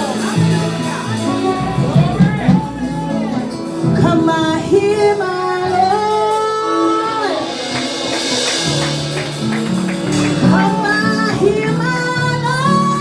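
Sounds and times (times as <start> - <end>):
band accompaniment: 0.0 - 13.0
person singing long notes: 1.1 - 7.7.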